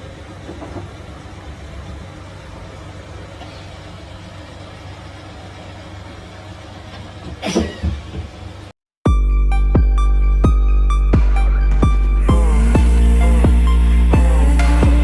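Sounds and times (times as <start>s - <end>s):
road noise: 0.0s - 8.8s, 9.5s - 15.0s
vehicle engine rumble: 0.0s - 15.0s
electronic music with heavy bass: 9.1s - 15.0s.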